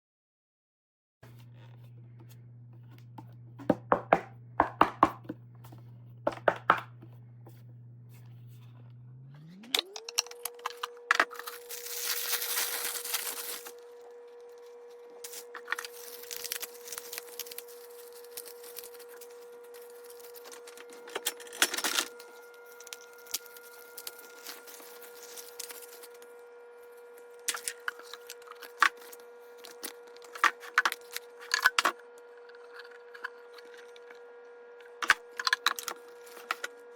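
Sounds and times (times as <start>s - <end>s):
steady hum: 1.2s - 36.9s
rustling: 11.3s - 13.8s.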